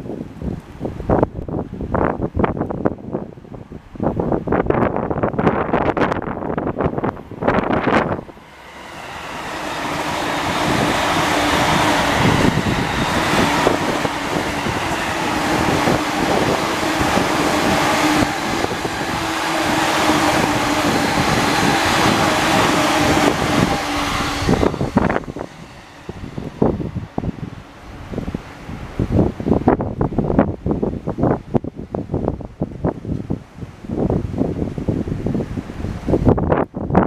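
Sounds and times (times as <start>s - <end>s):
train motor hum: 5.8s - 29.6s.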